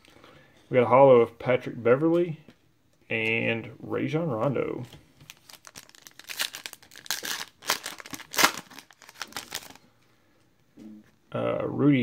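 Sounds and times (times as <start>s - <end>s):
wrapper crinkling and tearing: 5.2s - 9.8s.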